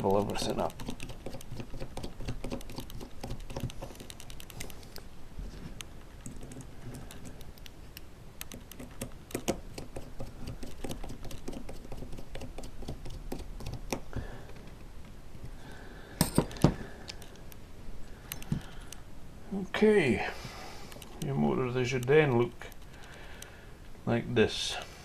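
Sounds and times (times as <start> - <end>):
screwdriver clicking on metal parts: 0.0 - 4.9, 6.2 - 14.0, 18.3 - 18.8.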